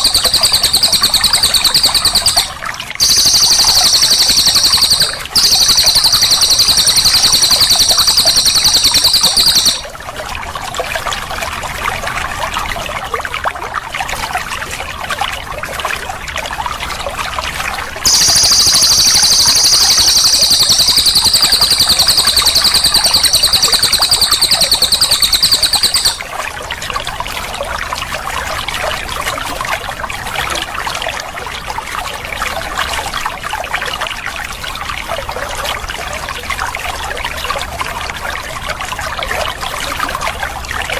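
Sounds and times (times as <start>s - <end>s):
songbird fast rolling trill: 0.0s - 9.9s, 18.1s - 26.3s
trickling water: 0.0s - 40.9s.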